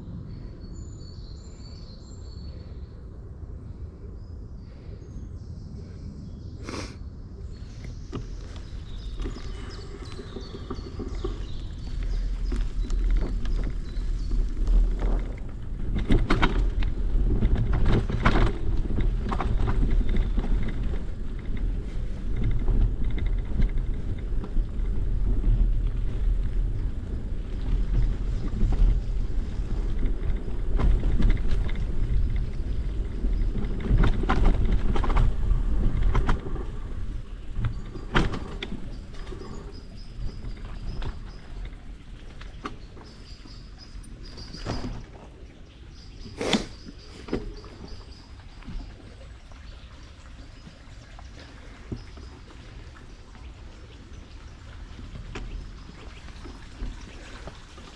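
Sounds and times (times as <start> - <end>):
wind on microphone: 7.3 - 50.2
bicycle tyres rolling: 7.4 - 57.9
bike rattling clicks: 7.8 - 45.4.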